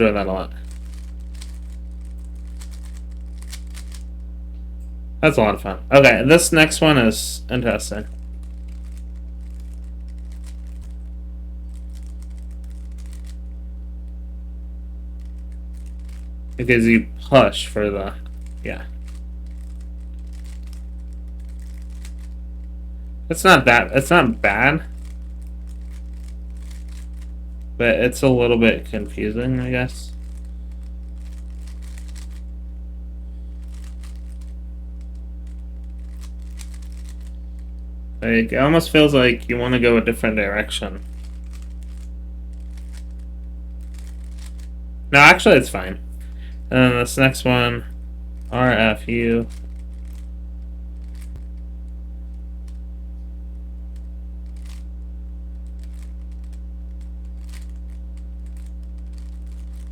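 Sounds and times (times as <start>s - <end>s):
low electrical hum: 0.0s - 59.9s
puzzle cube plastic clicks: 0.5s - 4.1s, 7.8s - 11.0s, 11.7s - 13.4s, 15.2s - 16.3s, 18.1s - 22.4s, 23.8s - 27.3s, 30.1s - 32.4s, 33.6s - 37.4s, 40.0s - 43.2s, 43.8s - 44.7s, 49.4s - 50.3s, 51.0s - 51.4s, 54.0s - 54.9s, 55.6s - 59.9s.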